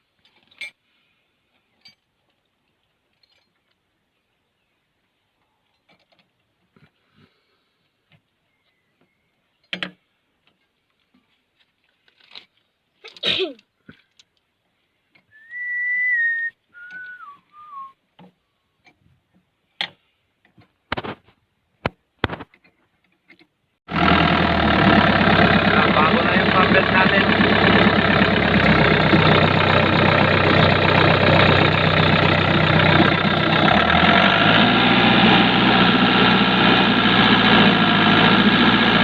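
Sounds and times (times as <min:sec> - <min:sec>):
person whistling: 0:15.3 - 0:18.0.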